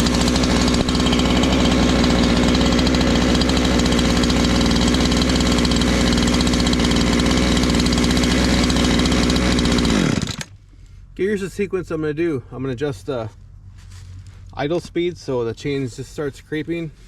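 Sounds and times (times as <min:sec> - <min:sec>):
chainsaw engine idling: 0:00.0 - 0:10.6.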